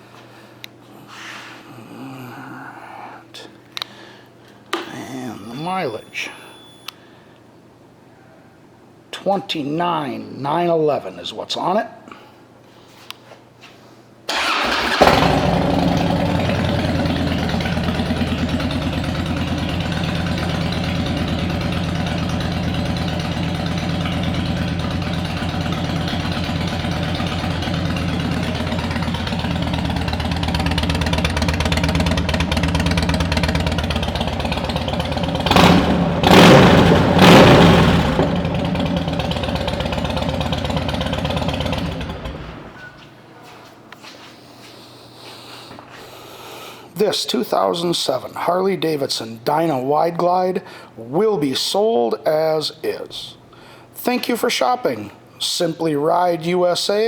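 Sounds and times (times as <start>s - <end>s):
motorcycle engine idling: 14.4s - 42.8s
motorcycle throttle blips: 14.4s - 43.0s.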